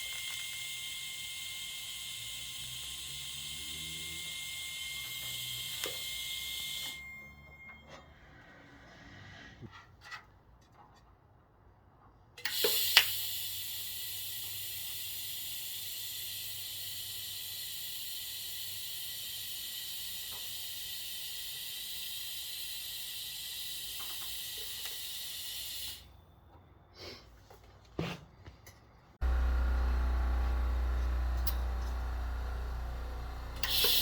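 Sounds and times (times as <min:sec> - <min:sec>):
welding arc hissing: 0:00.0 - 0:07.0, 0:12.5 - 0:26.1, 0:29.2 - 0:34.0.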